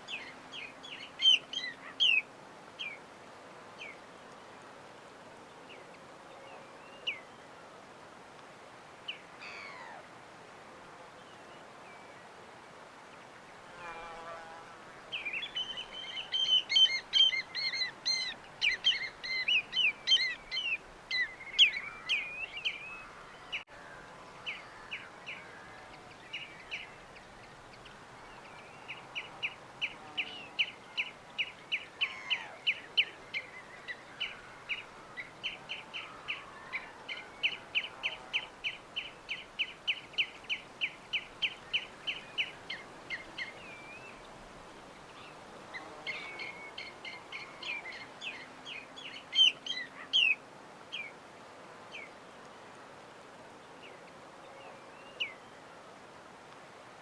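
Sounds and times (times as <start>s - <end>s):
small birds chirping: 0.0s - 3.0s, 15.1s - 51.2s
faint steady hiss: 0.0s - 57.0s.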